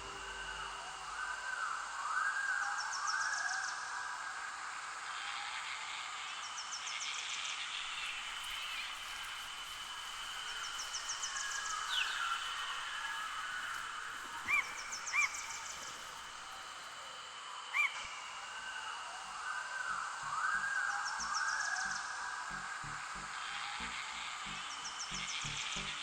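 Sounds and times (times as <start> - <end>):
low drone: 0.0 - 2.7, 8.0 - 26.0
high insect drone: 0.0 - 26.0
insect-like chirp trains: 0.0 - 26.0.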